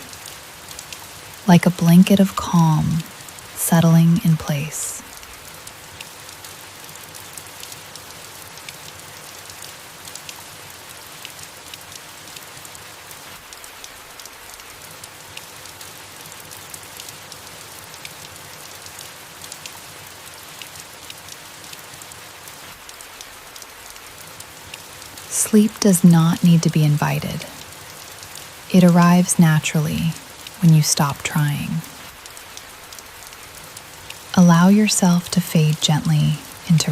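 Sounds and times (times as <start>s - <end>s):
soft rain falling: 0.0s - 36.9s.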